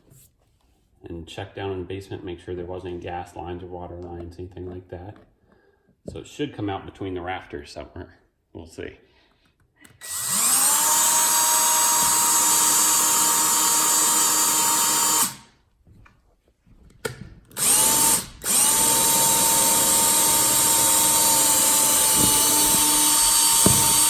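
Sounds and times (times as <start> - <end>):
electric drill boring: 10.0 - 15.5, 17.5 - 24.0.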